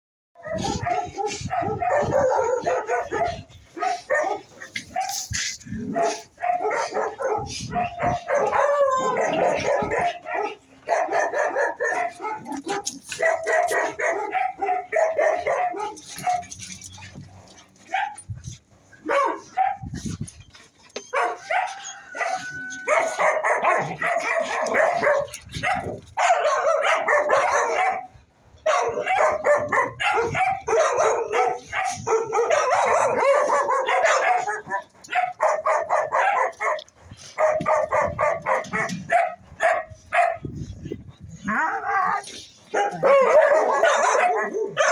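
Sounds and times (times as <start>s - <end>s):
dogs barking: 0.4s - 18.3s, 19.0s - 20.3s, 21.0s - 44.9s
dogs snarling and growling: 0.4s - 27.9s, 28.8s - 44.9s.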